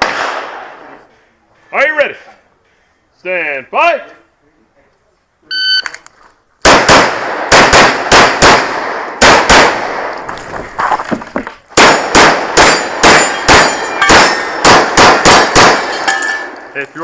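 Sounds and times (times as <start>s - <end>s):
pistol shots: 0.0s - 0.8s, 6.6s - 10.2s, 11.8s - 16.6s.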